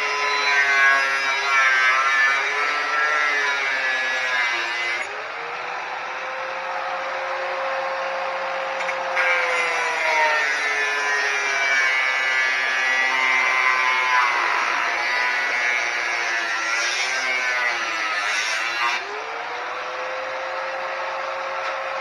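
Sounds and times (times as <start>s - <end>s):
angle grinder cutting metal: 0.0s - 5.6s, 8.3s - 19.4s.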